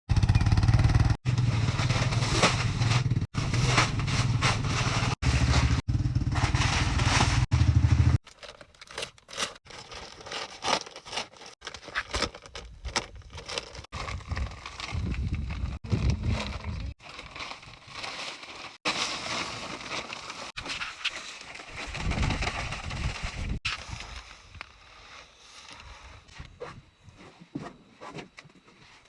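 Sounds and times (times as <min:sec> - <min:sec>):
vehicle engine running: 0:00.1 - 0:08.2
scraping and crackling: 0:01.1 - 0:28.4.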